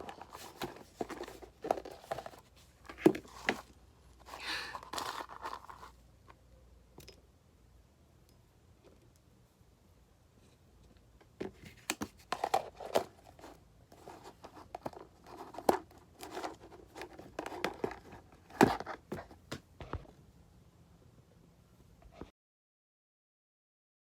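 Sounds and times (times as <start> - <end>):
hamster crinkling and crunching: 0.0 - 6.0, 11.7 - 19.3.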